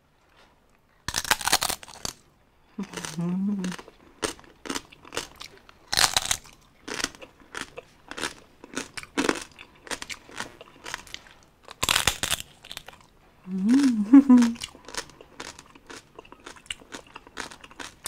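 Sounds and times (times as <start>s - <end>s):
crisp pork skin crunching: 1.1s - 2.2s, 2.8s - 13.0s.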